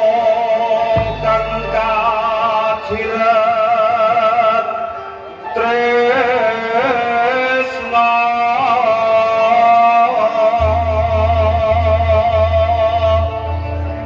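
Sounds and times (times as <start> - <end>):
person singing wavering melody: 0.2 - 14.0.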